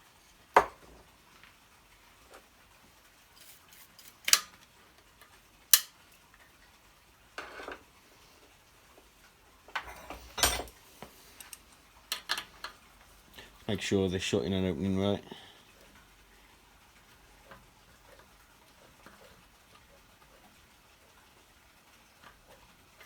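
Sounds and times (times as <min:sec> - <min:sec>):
metal tools clinking on engine: 0:09.8 - 0:10.8.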